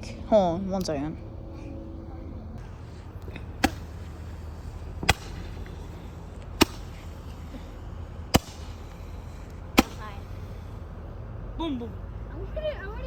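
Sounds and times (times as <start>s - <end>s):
fireworks bangs: 2.6s - 10.6s.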